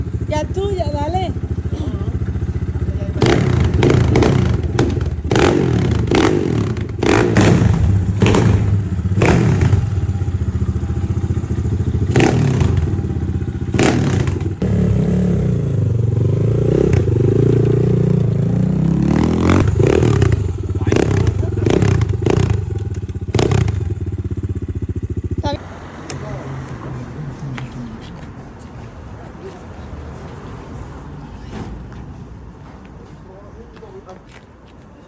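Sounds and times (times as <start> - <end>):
motorcycle engine revving: 0.0 - 27.7
sharp thumps and clatter: 3.7 - 9.8.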